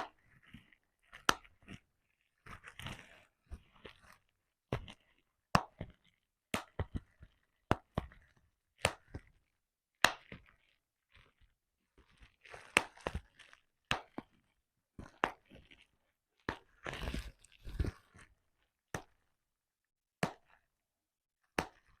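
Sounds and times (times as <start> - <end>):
bubble wrap popping: 12.1 - 18.3.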